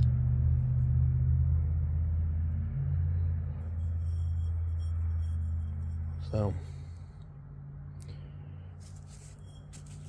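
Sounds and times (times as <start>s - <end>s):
rotary tool humming: 3.4s - 7.2s, 8.7s - 10.0s.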